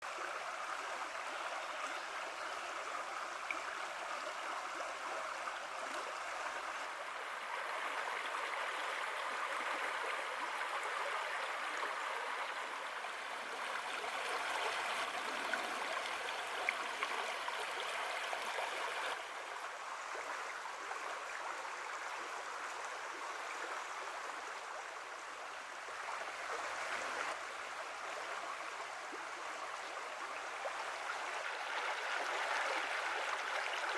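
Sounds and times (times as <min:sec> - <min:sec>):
creek water babbling: 0:00.0 - 0:33.9.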